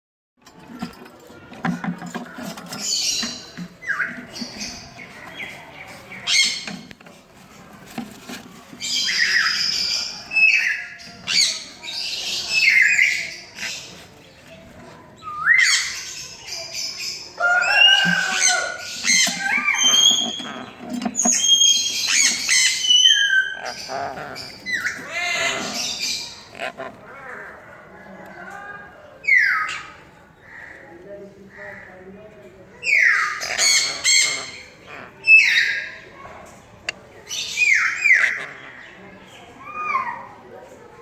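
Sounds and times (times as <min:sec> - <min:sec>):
parrots squawking: 0:17.4 - 0:27.7, 0:32.8 - 0:36.0, 0:37.3 - 0:39.0
sliding chirps: 0:17.9 - 0:26.8.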